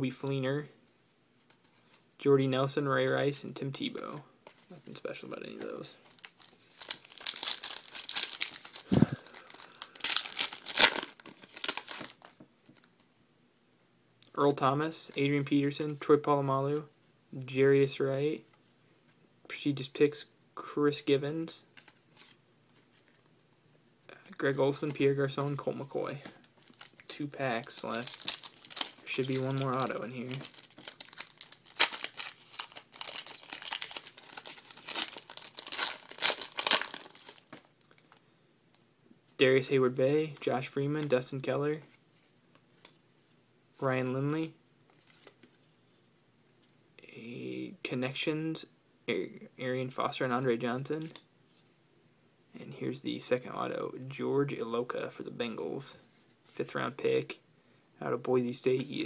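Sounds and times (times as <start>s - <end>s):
wrapper tearing and crinkling: 6.1s - 13.0s, 27.7s - 37.9s.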